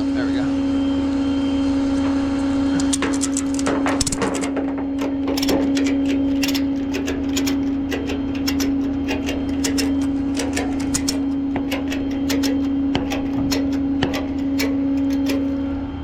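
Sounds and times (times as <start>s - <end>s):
machine humming: 0.0s - 16.0s
sharp clicks and ticks: 2.8s - 15.5s.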